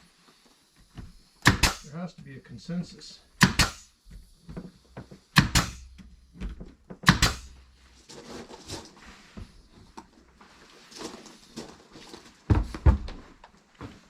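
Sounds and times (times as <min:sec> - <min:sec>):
sharp knocks in pairs: 0:01.4 - 0:01.9, 0:03.4 - 0:03.9, 0:05.0 - 0:07.6.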